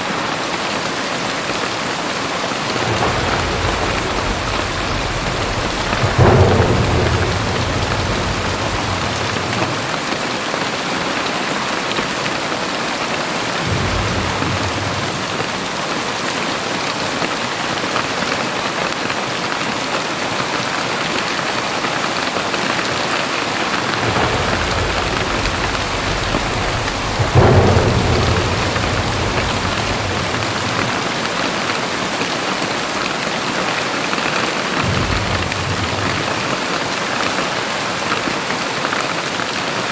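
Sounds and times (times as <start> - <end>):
heavy rain pouring: 0.0 - 39.9
low thunder rumbles: 1.4 - 10.8, 12.2 - 16.7, 23.0 - 32.6, 34.6 - 37.6.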